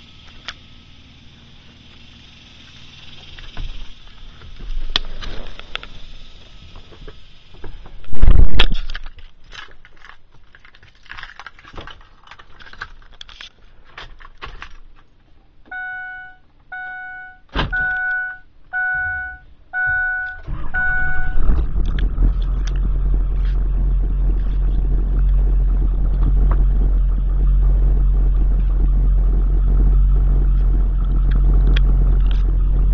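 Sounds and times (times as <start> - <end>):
diesel engine starting and idling: 0.0 - 8.0, 15.7 - 32.9
clicks and rattles: 6.8 - 15.3
electronic warning chime: 15.7 - 21.4
loud thump: 17.5 - 18.0.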